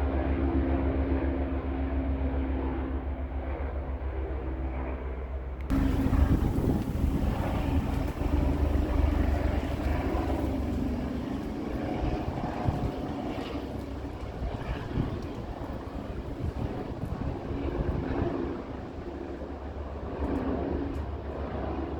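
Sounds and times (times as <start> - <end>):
helicopter engine and rotor: 0.0 - 21.9
wind buffeting microphone: 5.7 - 21.8.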